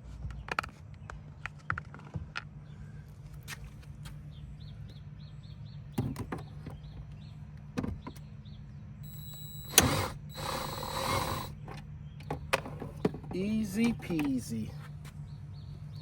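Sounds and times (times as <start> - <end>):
steady low hum: 6.9 - 16.0.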